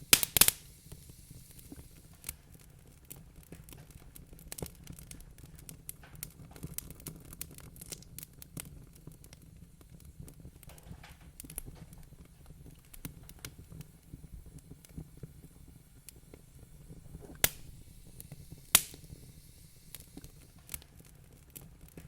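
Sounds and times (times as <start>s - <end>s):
loud sharp pops: 0.0s - 2.4s, 16.1s - 20.9s
wood fire crackling: 0.0s - 22.0s.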